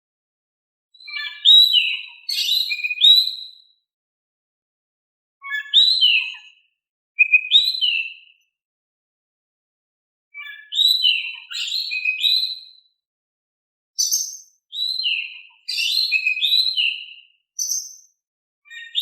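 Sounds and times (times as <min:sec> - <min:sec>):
bird whistling song: 0:01.0 - 0:03.8, 0:05.4 - 0:08.4, 0:10.4 - 0:13.0, 0:14.0 - 0:19.0.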